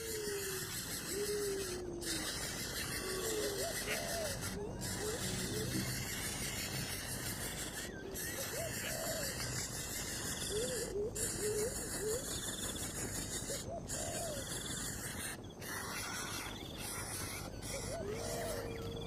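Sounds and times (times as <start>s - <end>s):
animal low warbling calls: 0.0s - 9.5s, 15.6s - 19.0s
insects chirring: 0.0s - 19.0s.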